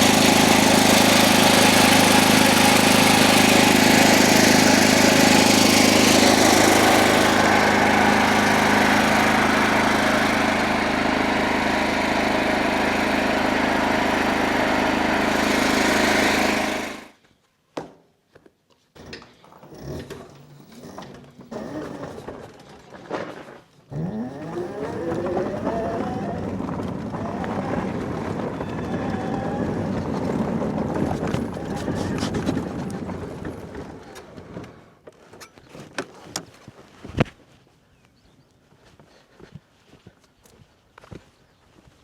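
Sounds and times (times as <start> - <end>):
generator engine running: 0.0 - 17.2, 23.9 - 34.8.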